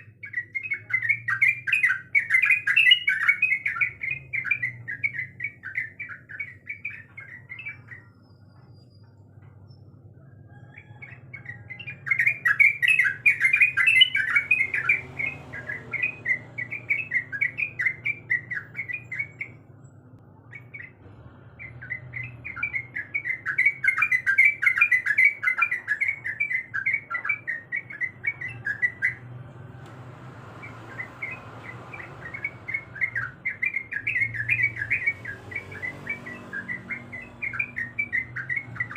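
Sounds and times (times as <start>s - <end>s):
bulbul chattering song: 0.0s - 38.9s
faint low hum: 14.0s - 38.9s.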